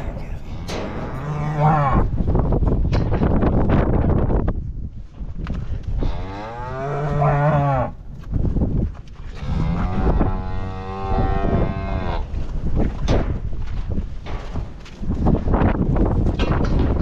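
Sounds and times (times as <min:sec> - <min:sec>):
cattle mooing: 0:00.0 - 0:02.1, 0:06.0 - 0:08.0, 0:09.4 - 0:12.2.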